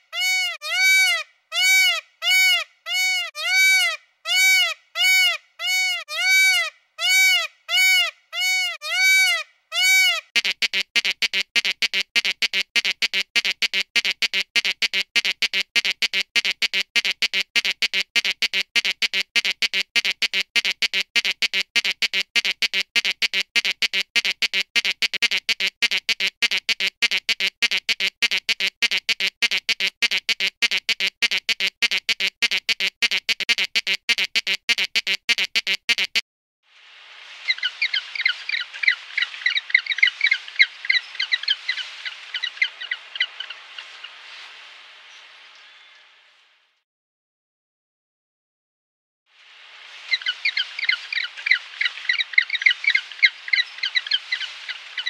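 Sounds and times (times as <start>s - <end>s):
bird squawking rapidly: 0.0s - 36.2s, 37.4s - 44.2s, 50.0s - 55.0s
high-pitched chirping and twittering: 37.5s - 44.0s, 50.0s - 55.0s.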